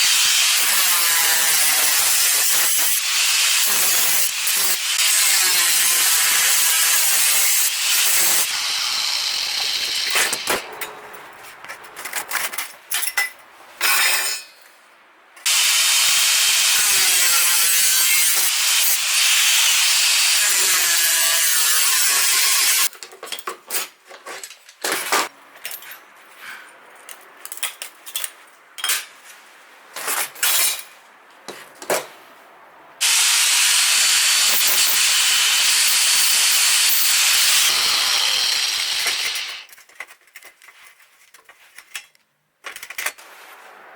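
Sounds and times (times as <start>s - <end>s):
welding arc crackling and hissing: 0.0s - 10.5s, 15.5s - 22.9s, 33.0s - 39.7s.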